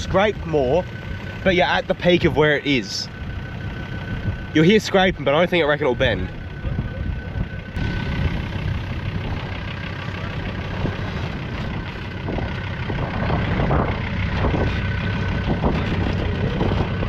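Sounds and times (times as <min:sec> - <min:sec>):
car engine at low revs: 0:00.0 - 0:17.0
scraping underneath vehicle: 0:06.0 - 0:17.0.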